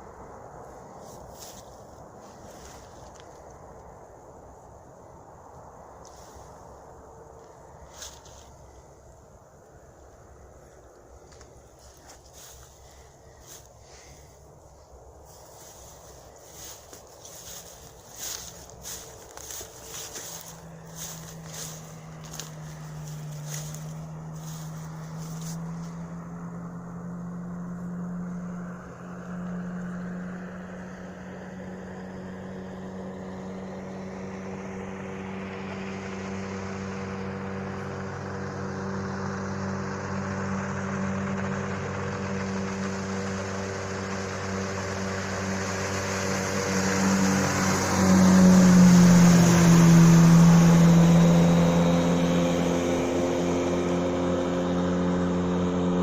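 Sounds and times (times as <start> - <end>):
outboard motor running: 10.6 - 28.5, 31.2 - 56.0.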